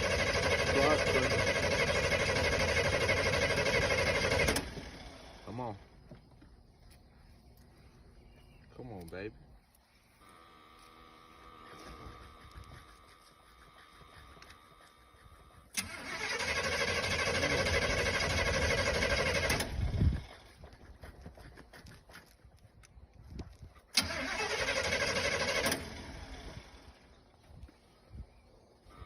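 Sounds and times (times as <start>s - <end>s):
car engine cranking: 0.0s - 5.5s, 15.7s - 20.2s, 23.9s - 26.9s.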